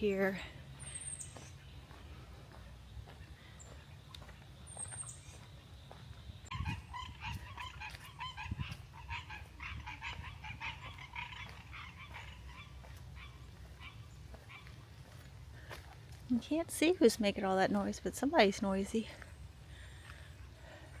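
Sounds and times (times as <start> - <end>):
geese honking: 6.5 - 14.8.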